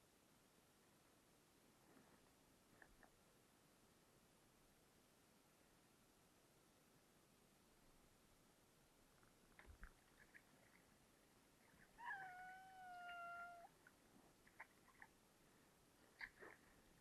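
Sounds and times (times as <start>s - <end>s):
faint small clicks: 2.7s - 3.2s, 9.2s - 10.9s, 13.8s - 15.2s, 16.1s - 16.7s
cat meowing: 11.8s - 13.7s.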